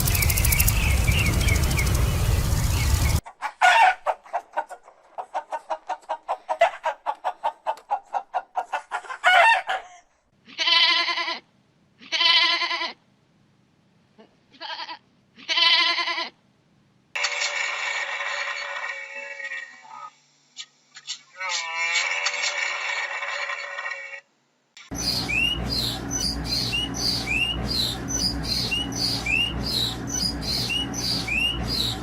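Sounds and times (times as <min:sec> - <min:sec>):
chicken clucking: 0:03.2 - 0:10.0
wavering bleating calls: 0:10.4 - 0:13.0, 0:14.5 - 0:16.4, 0:17.2 - 0:20.1, 0:21.1 - 0:24.3.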